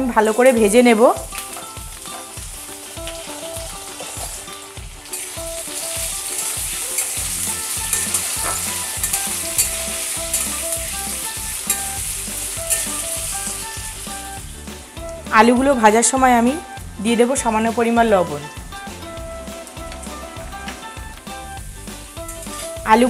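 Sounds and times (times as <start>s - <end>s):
potatoes sizzling in oil: 0.0s - 23.0s
metal spatula scraping a pan: 1.4s - 14.2s.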